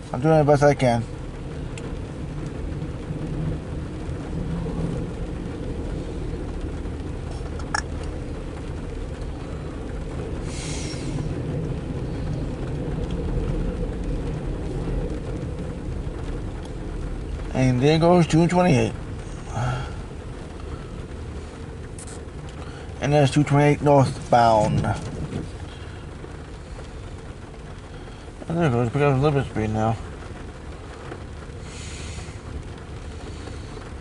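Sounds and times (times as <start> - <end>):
diesel freight train rumbling: 0.0 - 28.4
short hiss: 10.5 - 11.3, 31.6 - 32.5.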